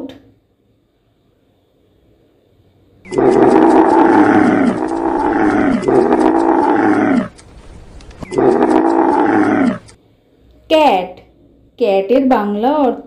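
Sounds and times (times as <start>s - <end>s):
camel calling: 3.1s - 7.5s, 8.2s - 10.0s.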